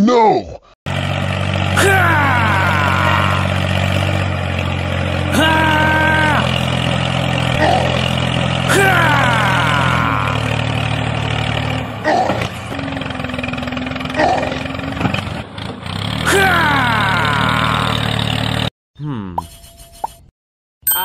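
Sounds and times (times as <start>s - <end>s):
tractor engine idling: 0.9s - 16.7s.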